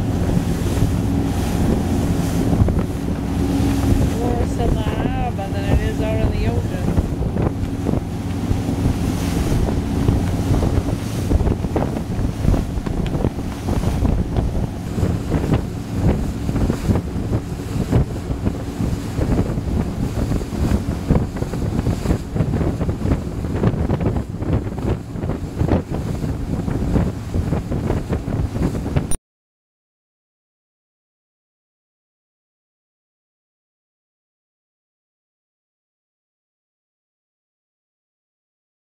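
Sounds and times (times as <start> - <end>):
boat engines droning: 0.0 - 29.0
water rushing: 0.0 - 29.1
wind buffeting microphone: 0.0 - 29.2.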